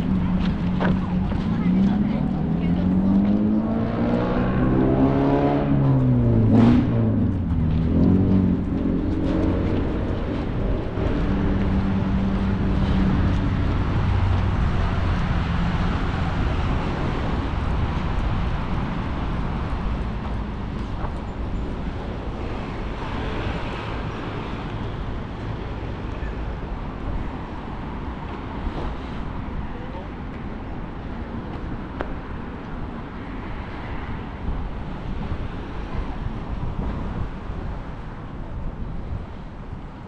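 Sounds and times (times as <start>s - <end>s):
vehicle engine humming: 0.0s - 39.5s
passing road traffic hiss: 9.4s - 40.0s.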